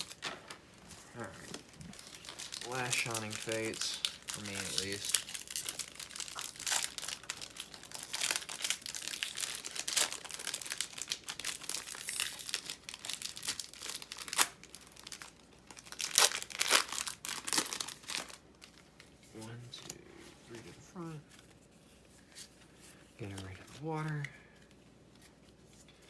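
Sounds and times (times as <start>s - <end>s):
foil wrapper crinkling and tearing: 0.0s - 0.3s, 1.2s - 18.9s.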